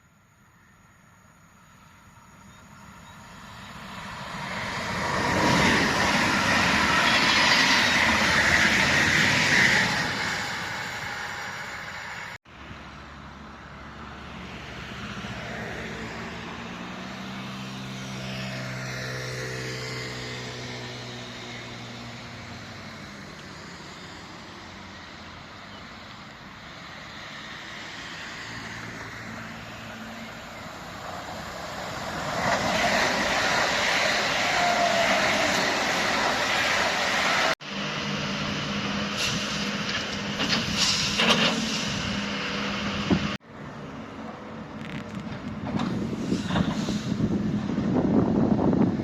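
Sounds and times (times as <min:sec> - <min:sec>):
train rumble: 0:02.0 - 0:12.4, 0:29.5 - 0:43.4, 0:44.2 - 0:49.0
train wheels rushing on rails: 0:03.3 - 0:12.4, 0:29.9 - 0:43.4, 0:45.2 - 0:49.0.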